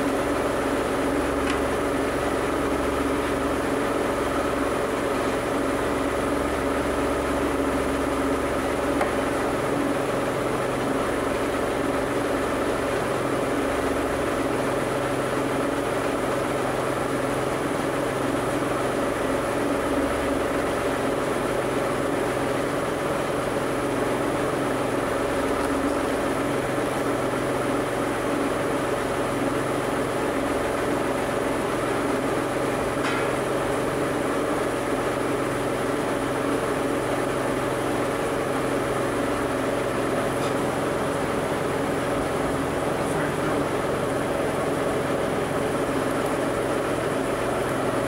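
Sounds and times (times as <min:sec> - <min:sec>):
car engine running steadily: 0:01.1 - 0:05.4, 0:08.4 - 0:10.0, 0:39.4 - 0:48.0.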